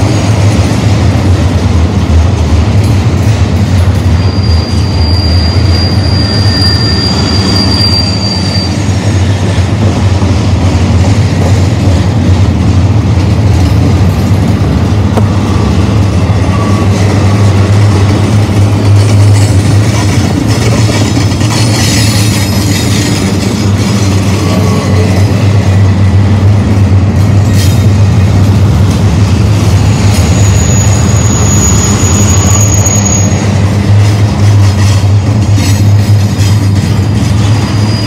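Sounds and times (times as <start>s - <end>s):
train wheels rumbling on rail: 0.0s - 38.0s
high steady squeal: 4.1s - 9.0s, 29.8s - 33.6s.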